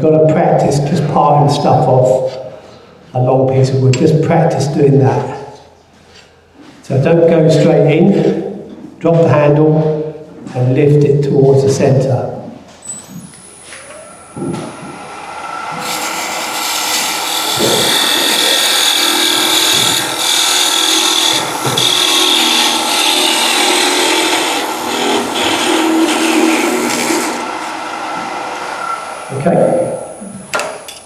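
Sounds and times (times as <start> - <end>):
tool scraping wood on lathe: 12.9 - 31.0
lathe humming: 13.0 - 31.0.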